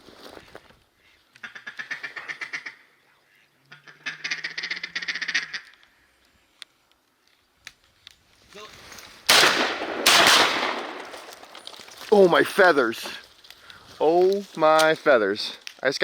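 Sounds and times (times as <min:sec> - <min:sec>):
mallard quacking: 0:01.4 - 0:02.9, 0:03.7 - 0:05.7.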